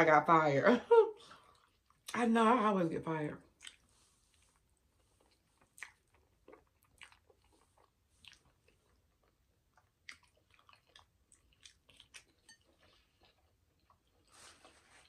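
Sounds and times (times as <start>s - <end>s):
chewing and wet mouth smacks: 3.5s - 14.3s.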